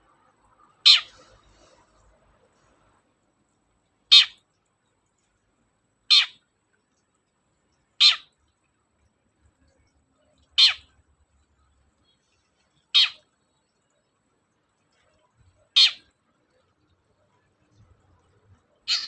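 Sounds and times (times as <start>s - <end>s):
bird harsh calls: 0.8s - 1.3s, 4.1s - 4.4s, 6.1s - 6.4s, 8.0s - 8.3s, 10.6s - 10.9s, 13.0s - 13.2s, 15.7s - 16.1s.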